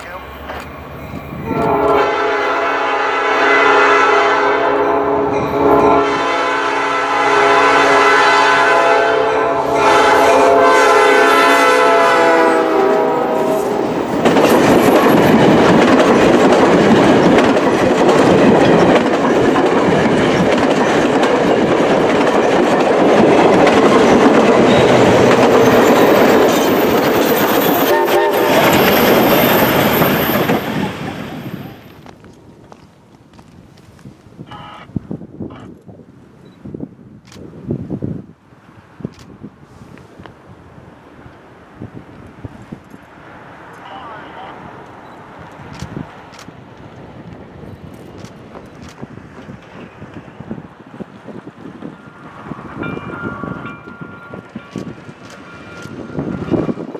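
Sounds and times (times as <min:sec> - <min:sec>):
wheels rumbling on rail: 0:00.0 - 0:56.9
steam locomotive whistle: 0:01.4 - 0:13.8, 0:24.6 - 0:31.5.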